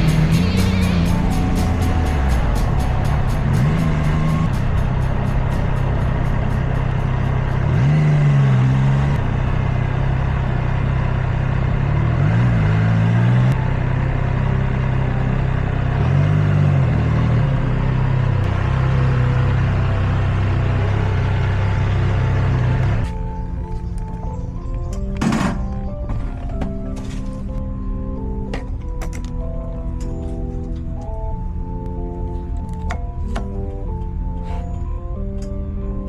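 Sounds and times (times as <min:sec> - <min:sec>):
vehicle engine revving: 0:00.0 - 0:23.4
road noise: 0:00.0 - 0:36.0.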